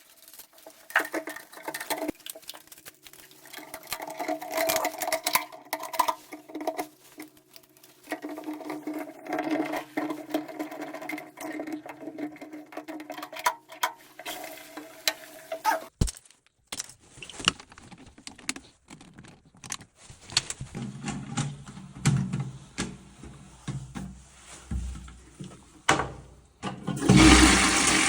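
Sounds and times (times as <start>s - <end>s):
plastic parts clicking and knocking: 0.4s - 14.4s, 15.9s - 24.2s.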